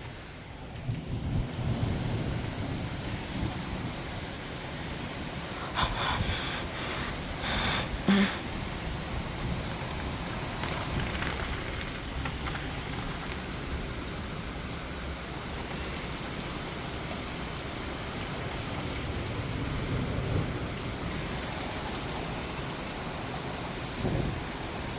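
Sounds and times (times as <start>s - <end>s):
heavy rain pouring: 0.0s - 24.9s
thunder rumbling: 0.7s - 15.3s, 23.9s - 24.9s.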